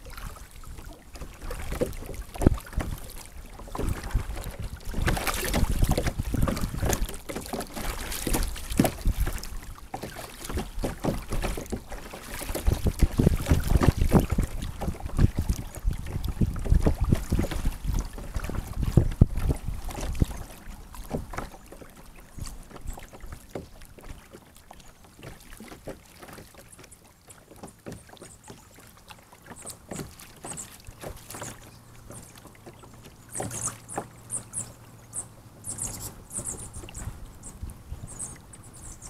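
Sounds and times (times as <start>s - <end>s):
wind rumble on microphone: 0.0s - 7.3s, 7.9s - 9.8s, 12.4s - 21.5s, 35.8s - 39.0s
paddle splashes: 0.0s - 39.0s.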